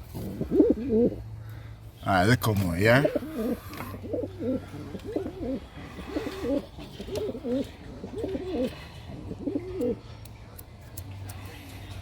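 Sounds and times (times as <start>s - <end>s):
pigeons cooing: 0.0s - 1.3s, 2.9s - 10.0s.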